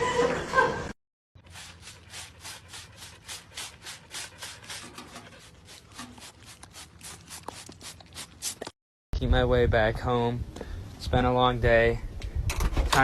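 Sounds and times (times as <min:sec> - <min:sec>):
rapid rubbing or scraping strokes: 0:01.4 - 0:08.7.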